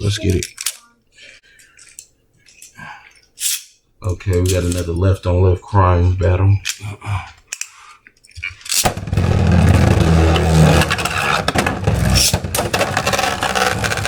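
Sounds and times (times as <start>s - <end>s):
spinning tops clacking together: 8.6s - 9.0s.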